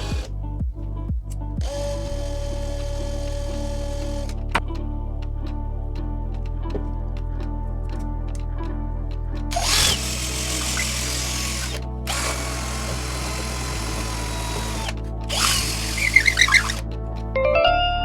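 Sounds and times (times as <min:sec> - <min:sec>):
power drill boring into wood: 0:00.0 - 0:00.3, 0:01.6 - 0:04.6, 0:09.5 - 0:16.8
background music: 0:00.0 - 0:18.0.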